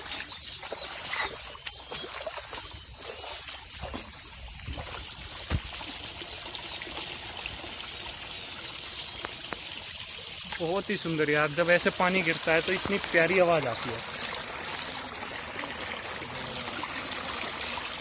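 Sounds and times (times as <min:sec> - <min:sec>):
waterfall splashing into pool: 0:09.1 - 0:18.0.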